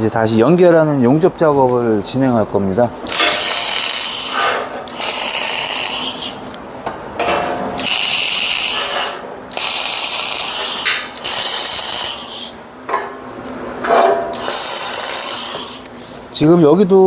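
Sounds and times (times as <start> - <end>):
arc welding crackling: 2.1 - 6.6, 7.7 - 12.6, 14.2 - 16.5.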